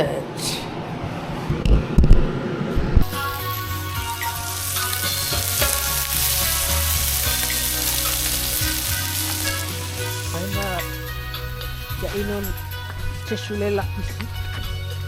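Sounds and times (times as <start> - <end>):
bacon sizzling in a pan: 3.0 - 12.1.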